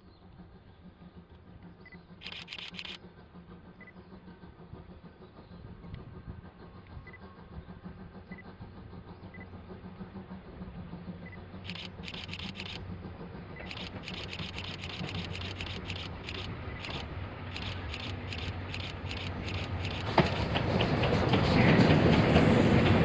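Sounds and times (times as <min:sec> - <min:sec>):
train rumbling: 0:00.0 - 0:23.0
camera shutter clicks: 0:17.6 - 0:20.0.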